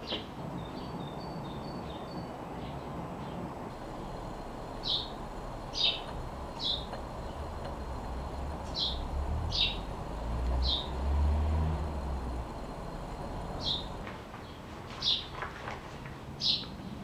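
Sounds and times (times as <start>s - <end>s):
small bird chirping: 0.0s - 15.3s
low rumble: 3.7s - 14.1s.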